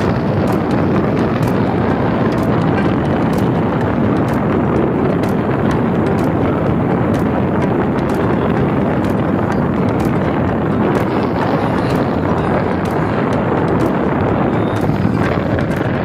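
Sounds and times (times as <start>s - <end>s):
machinery roaring: 0.0s - 16.0s
rushing water: 0.0s - 16.0s.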